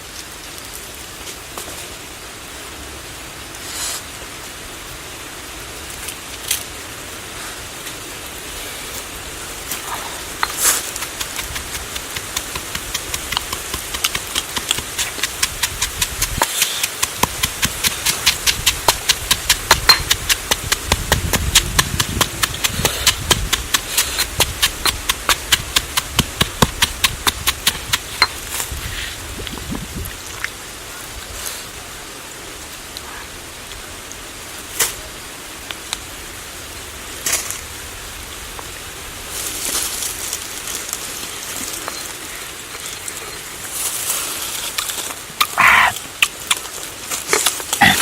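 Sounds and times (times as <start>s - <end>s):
rain hissing: 0.0s - 48.0s
rapid sharp knocks: 10.4s - 28.4s.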